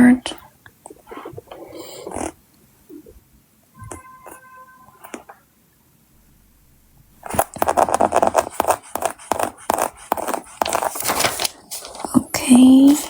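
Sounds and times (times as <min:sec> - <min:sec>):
hands scratching sticker sheets: 0:07.2 - 0:12.1.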